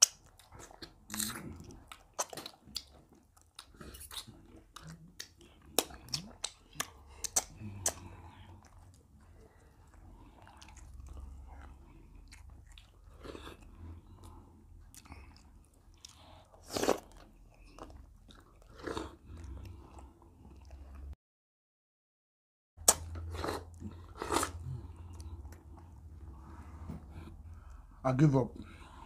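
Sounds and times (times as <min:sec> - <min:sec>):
chewing and mouth smacks: 0:00.0 - 0:21.2.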